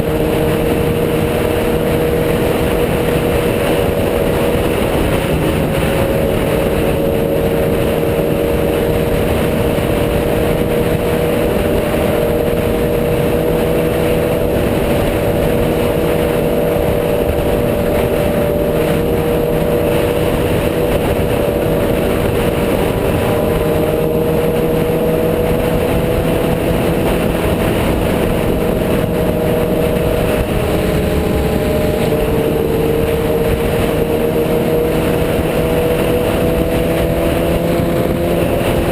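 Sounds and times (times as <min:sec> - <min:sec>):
motorcycle engine cruising: 0:00.0 - 0:38.9
road and wind noise: 0:00.0 - 0:38.9.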